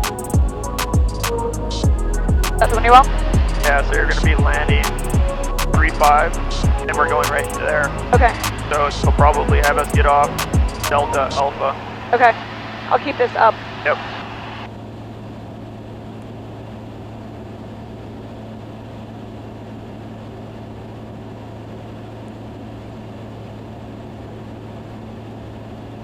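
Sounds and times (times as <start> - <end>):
intercom hiss: 0.0 - 14.7
aircraft engine and propeller drone: 0.0 - 26.0.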